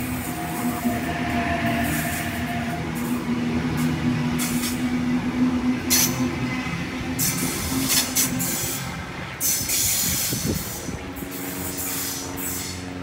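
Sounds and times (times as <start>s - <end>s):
electric train running past: 0.0s - 13.0s
burst of high-pitched noise: 0.1s - 3.5s.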